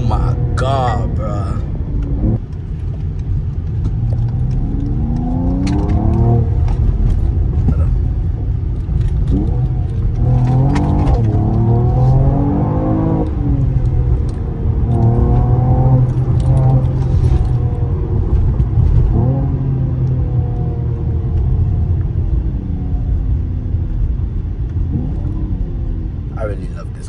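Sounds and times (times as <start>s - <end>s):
car engine and exhaust rumble: 0.0s - 27.0s.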